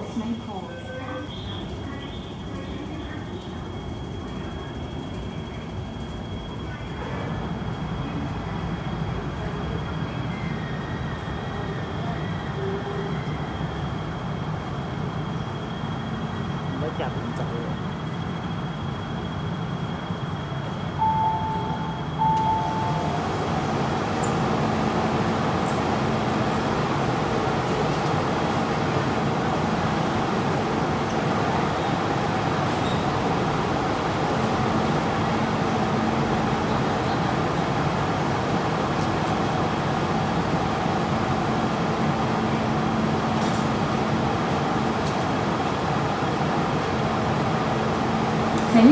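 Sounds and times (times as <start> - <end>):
train rumble with high whine: 0.0 - 48.9
train signal tones: 20.8 - 48.9.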